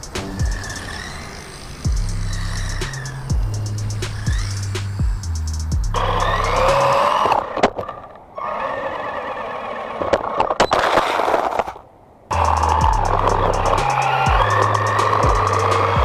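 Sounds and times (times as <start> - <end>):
background music with steady beat: 0.0 - 0.9, 1.8 - 7.0, 12.3 - 16.0
toy car bouncing on concrete: 0.0 - 5.2, 5.9 - 8.1, 10.0 - 16.0
rc car motor whine: 0.0 - 10.4, 12.3 - 16.0.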